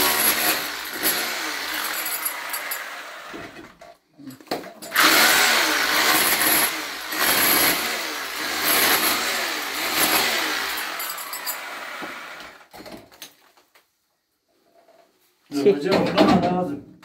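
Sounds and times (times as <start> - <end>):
electric power tool running: 0.0 - 3.7, 4.9 - 12.7.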